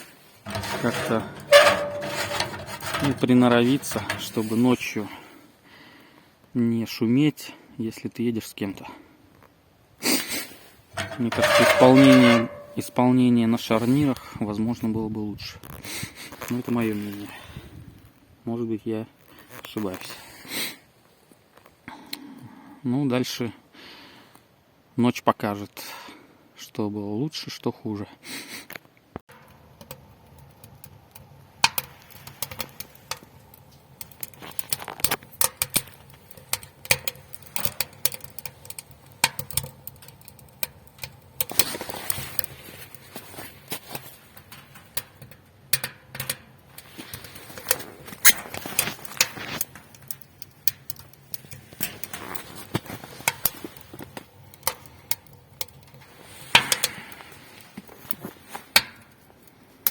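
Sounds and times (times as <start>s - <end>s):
fire crackling and popping: 29.3s - 59.9s.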